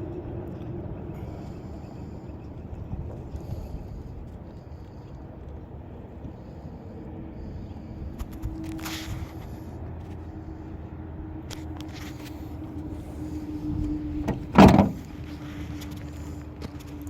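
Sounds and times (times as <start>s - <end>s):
steady low hum: 0.0s - 17.0s
loud thump: 14.2s - 15.0s.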